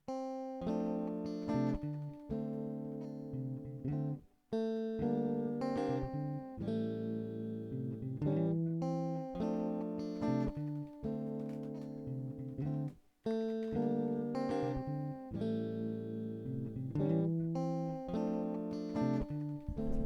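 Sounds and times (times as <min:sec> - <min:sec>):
guitar playing chords and notes: 0:00.0 - 0:20.0.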